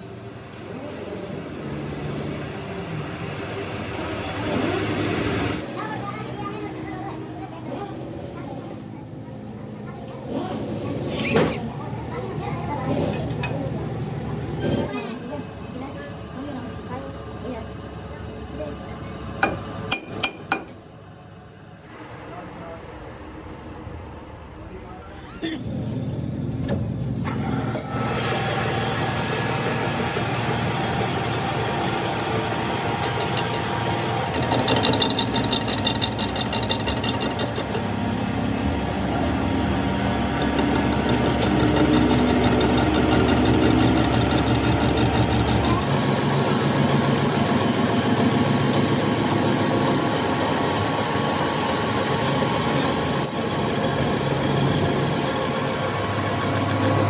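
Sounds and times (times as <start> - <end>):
machine humming: 25.5 - 57.0
fast high rhythmic ticking: 40.4 - 57.0.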